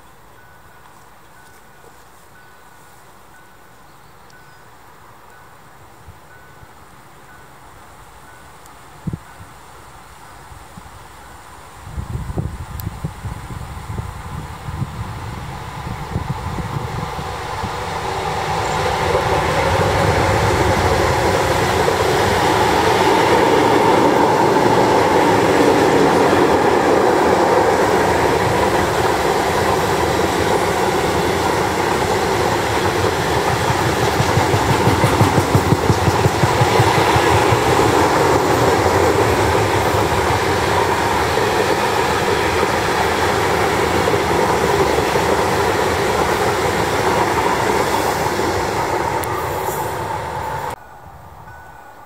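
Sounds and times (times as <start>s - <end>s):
train wheels rumbling on rails: 12.0s - 50.8s
wheels clacking over rail joints: 18.0s - 50.8s.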